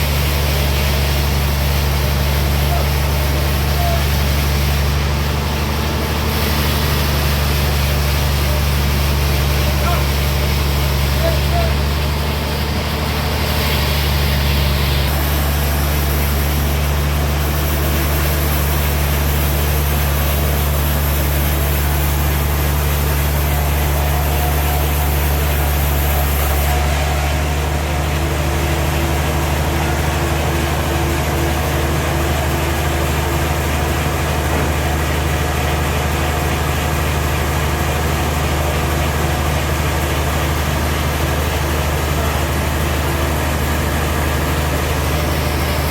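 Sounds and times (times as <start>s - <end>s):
sawmill engine humming: 0.0s - 45.9s.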